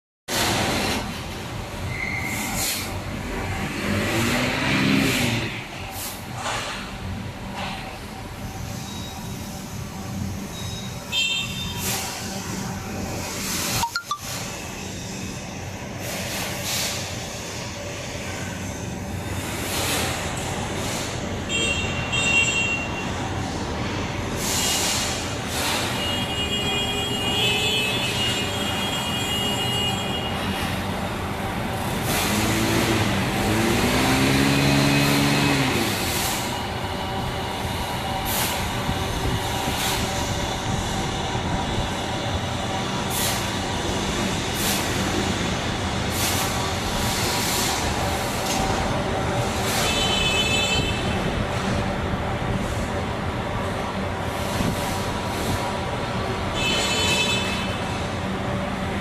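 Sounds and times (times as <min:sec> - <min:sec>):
factory machinery running: 0:00.3 - 0:59.0
compressed air hisses: 0:24.4 - 0:25.9.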